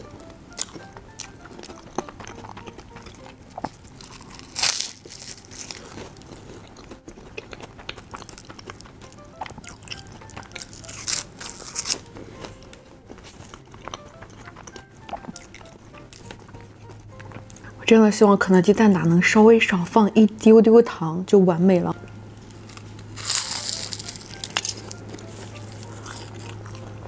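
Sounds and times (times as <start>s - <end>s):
crackly pastry crunches: 0.5s - 16.5s, 22.5s - 27.0s
crisp bites: 1.6s - 8.8s, 9.4s - 12.1s, 22.6s - 26.8s.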